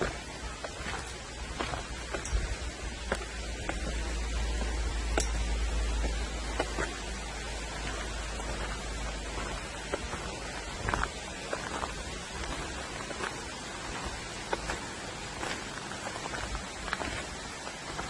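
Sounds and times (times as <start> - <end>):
water trickling over rocks: 0.0 - 18.0
wind rumbling on microphone: 0.0 - 18.0.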